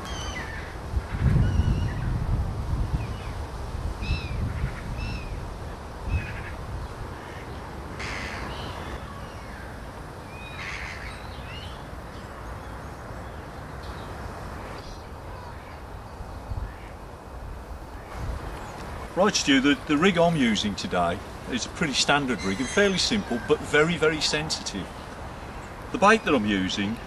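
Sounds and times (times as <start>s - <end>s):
birds giving harsh calls: 0.0s - 2.1s, 7.2s - 11.8s, 18.7s - 27.0s.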